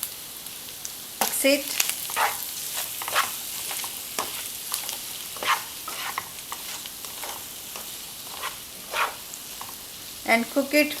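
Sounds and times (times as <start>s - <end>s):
potatoes sizzling in oil: 0.0s - 11.0s
spatula scraping pan: 1.8s - 9.9s.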